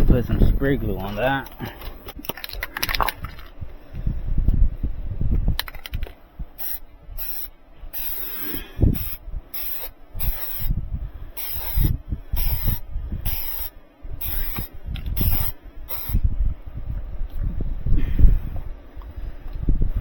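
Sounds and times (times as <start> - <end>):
aerosol can spraying: 6.6 - 10.7, 11.4 - 16.2.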